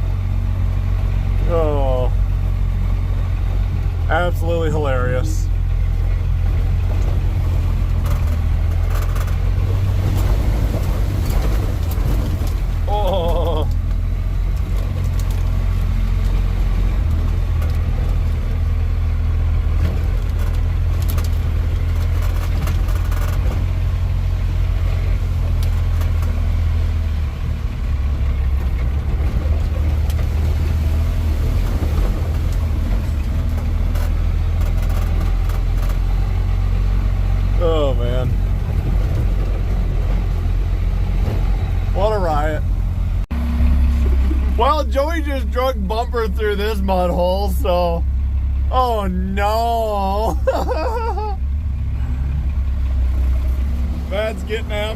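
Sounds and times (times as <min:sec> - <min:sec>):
truck engine droning: 0:00.0 - 0:54.9
truck rattles and knocks: 0:05.9 - 0:37.4, 0:38.2 - 0:45.2.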